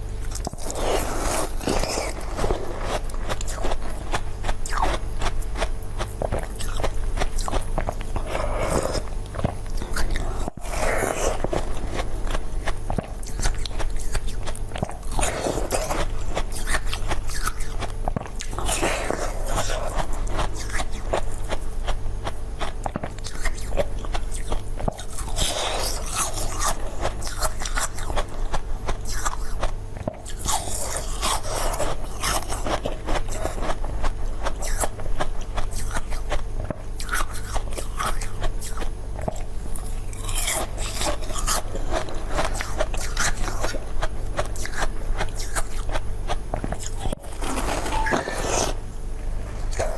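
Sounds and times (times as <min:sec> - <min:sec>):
crunchy biting and chewing: 0:00.0 - 0:49.9
wet sticky mouth sounds: 0:34.4 - 0:47.2.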